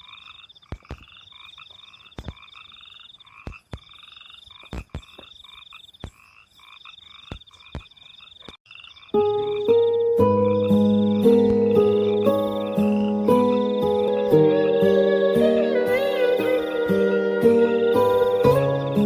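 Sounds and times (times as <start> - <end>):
low pulsed frog croaks: 0.0 - 14.8
high pulsed frog trill: 0.0 - 19.0.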